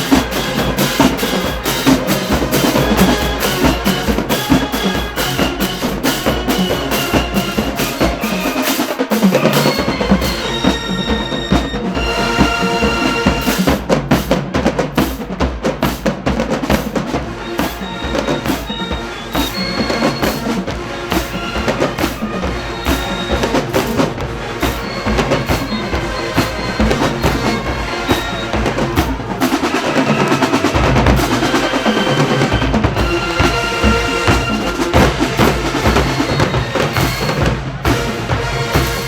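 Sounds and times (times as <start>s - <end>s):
snare drums: 0.0s - 39.0s
bass drums: 9.8s - 30.0s, 30.6s - 39.0s.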